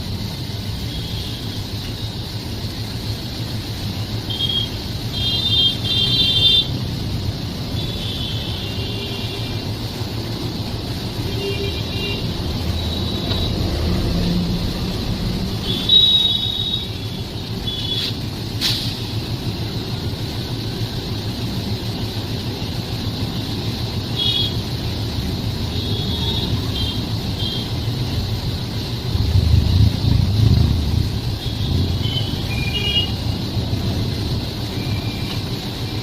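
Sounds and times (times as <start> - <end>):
train rumbling: 9.4 - 36.0.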